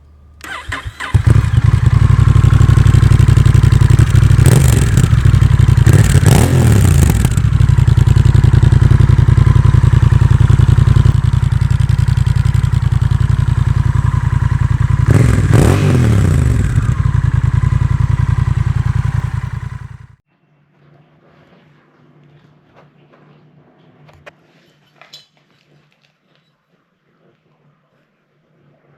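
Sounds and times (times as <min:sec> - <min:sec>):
motorcycle engine revving: 0:00.4 - 0:20.2.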